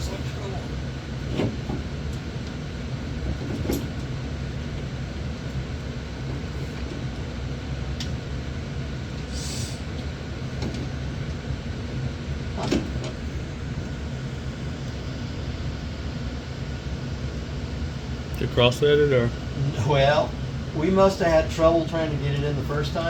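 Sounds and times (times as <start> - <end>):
low mechanical hum: 0.0 - 23.0
short hiss: 9.3 - 9.8.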